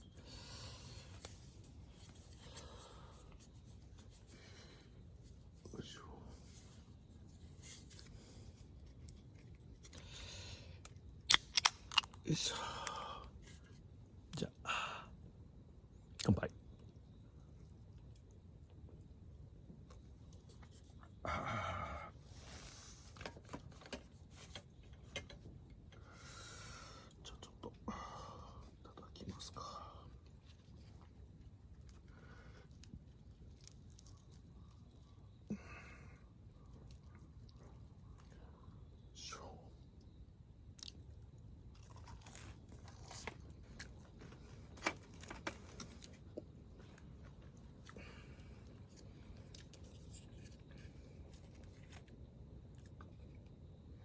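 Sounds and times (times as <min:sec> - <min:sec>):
person chewing food: 0:41.7 - 0:43.2.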